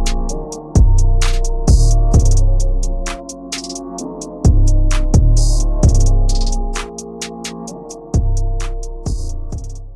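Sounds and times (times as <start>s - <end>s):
steady hi-hat beat: 0.0s - 9.9s
heavy kick drums: 0.8s - 2.5s, 4.5s - 6.3s, 8.2s - 9.9s.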